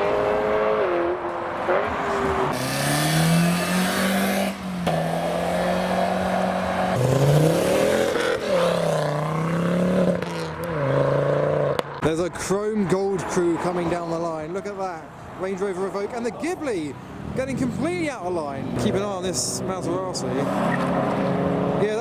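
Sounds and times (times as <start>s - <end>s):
car engine revving: 0.0s - 12.1s, 17.2s - 22.0s.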